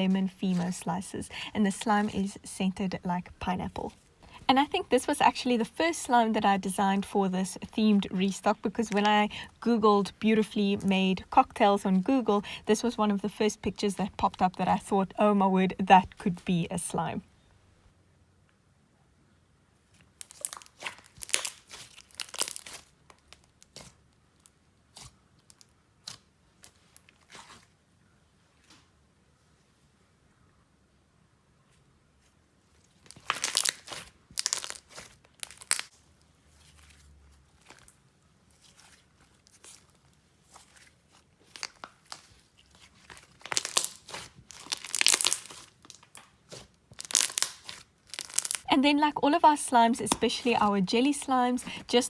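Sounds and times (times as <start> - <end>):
slime popping and crackling: 0.3 - 0.8, 20.1 - 24.0, 33.1 - 36.0, 41.4 - 52.0.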